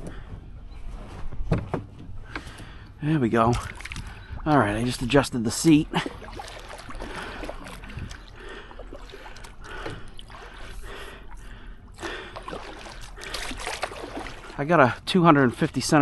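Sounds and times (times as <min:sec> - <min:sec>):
water running off paddle blades: 0:02.3 - 0:16.0
kayak paddle splashing: 0:03.4 - 0:15.9.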